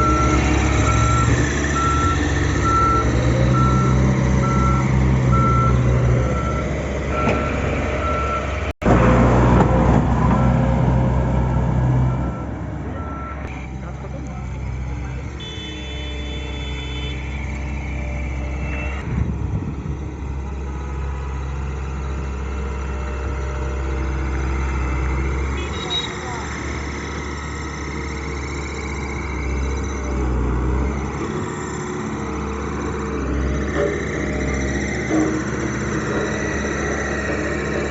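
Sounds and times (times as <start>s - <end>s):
reversing alarm beeping: 0.0s - 8.6s, 11.5s - 13.5s
diesel engine running: 0.0s - 37.9s.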